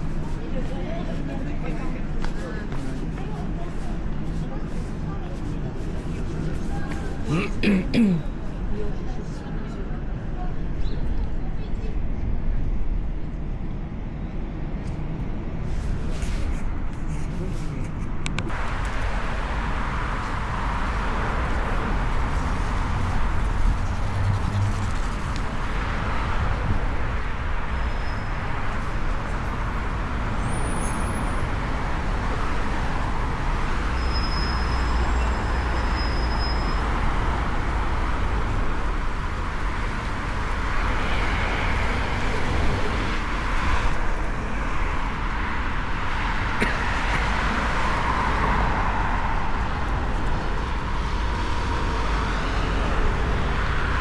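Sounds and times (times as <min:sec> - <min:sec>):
cars passing: 0:18.3 - 0:54.0.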